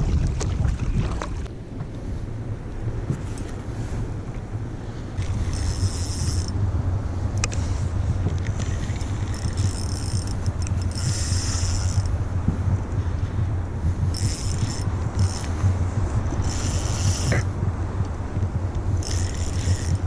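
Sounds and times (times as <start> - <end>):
steady low rumble: 0.0 - 20.0
fishing reel gears whirring: 5.2 - 6.7, 8.4 - 12.2, 14.0 - 17.5, 18.8 - 20.0.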